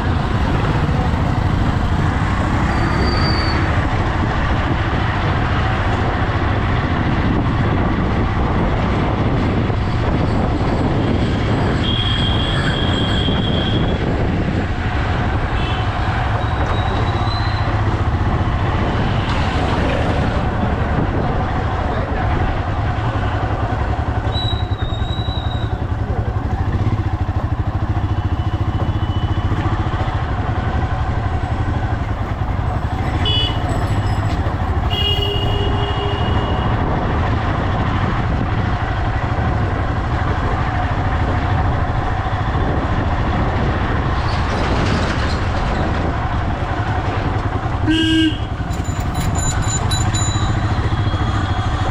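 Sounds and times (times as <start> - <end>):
motorcycle engine running: 0.0 - 8.7, 20.4 - 44.2, 45.6 - 51.9
road noise: 0.0 - 51.9
short high-pitched beeps: 48.8 - 50.7.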